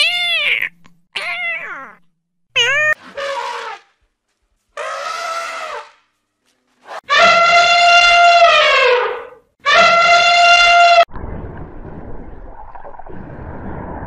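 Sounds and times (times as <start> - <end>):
elephant trumpeting: 2.7 - 3.9, 4.8 - 6.0
muffled underwater wash: 11.1 - 14.0.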